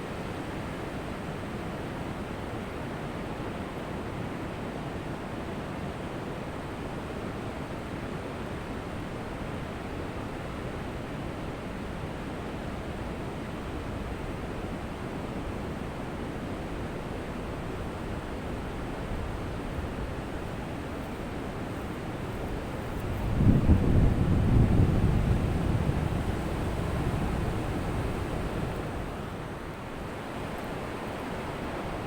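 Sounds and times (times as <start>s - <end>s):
ocean surf washing onto beach: 17.8s - 32.0s.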